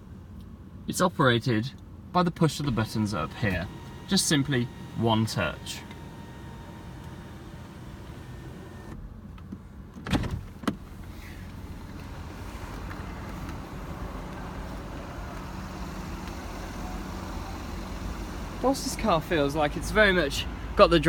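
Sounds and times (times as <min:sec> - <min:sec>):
electric roof motor humming: 0:02.8 - 0:09.0, 0:10.9 - 0:20.8.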